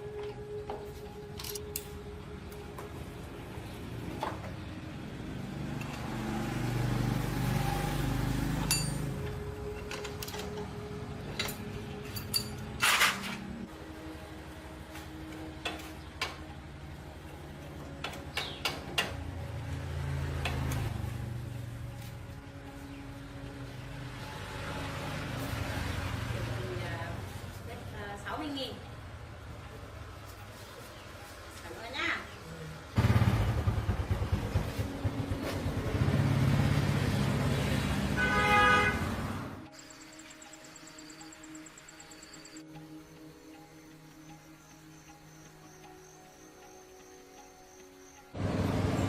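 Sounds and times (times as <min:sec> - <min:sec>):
small engine running: 0:33.0 - 0:38.2, 0:48.4 - 0:49.0.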